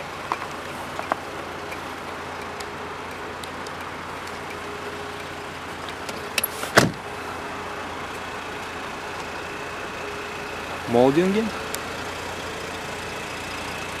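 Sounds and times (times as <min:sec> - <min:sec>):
car door shutting thump: 0:06.4 - 0:07.1.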